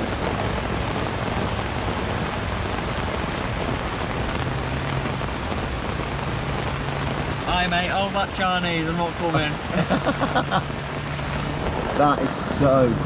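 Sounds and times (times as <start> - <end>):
heavy rain on lake and mud: 0.0 - 13.0.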